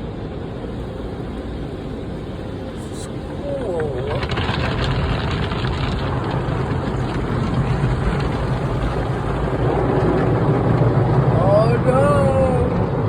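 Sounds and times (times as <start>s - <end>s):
low hum: 0.0s - 13.0s
water spray on car: 0.4s - 13.0s.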